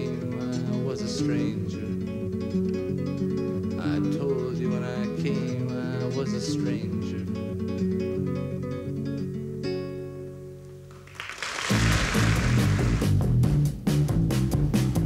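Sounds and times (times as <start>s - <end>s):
fingerpicked acoustic guitar: 0.0s - 11.0s.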